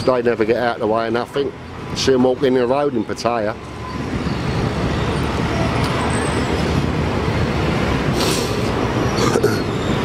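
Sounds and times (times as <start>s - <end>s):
brief high hiss: 8.2s - 8.7s.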